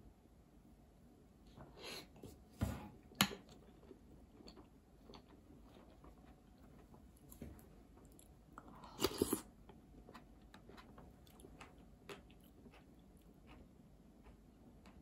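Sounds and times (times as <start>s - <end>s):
person chewing: 3.5s - 15.0s.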